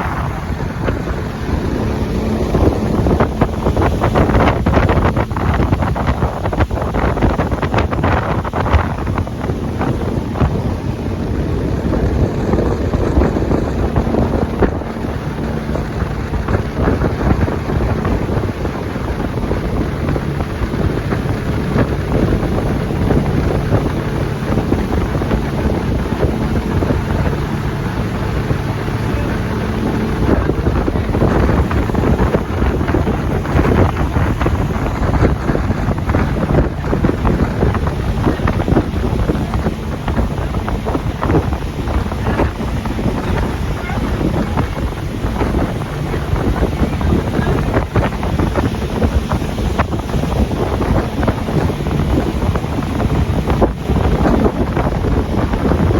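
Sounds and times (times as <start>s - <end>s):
motorboat engine drone: 0.0s - 55.9s
wind buffeting microphone: 0.0s - 55.9s.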